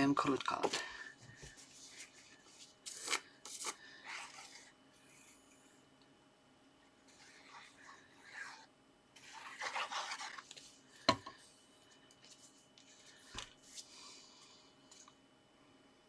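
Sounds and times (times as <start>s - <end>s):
card scraping against paper: 9.2s - 10.6s.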